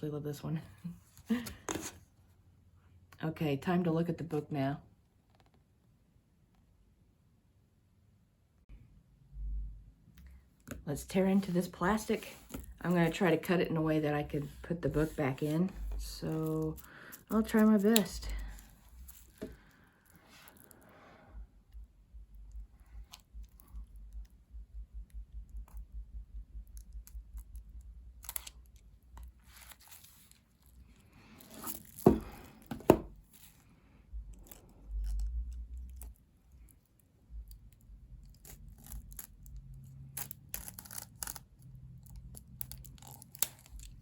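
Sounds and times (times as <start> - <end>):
plastic wrap crinkling and tearing: 14.5 - 20.8, 27.4 - 32.6, 34.3 - 44.0.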